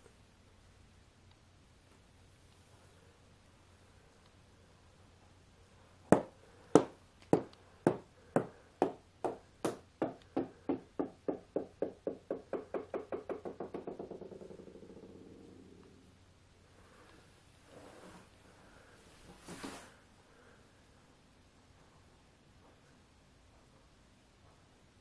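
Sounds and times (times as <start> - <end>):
rubber ball bouncing on floor: 6.1 - 15.1.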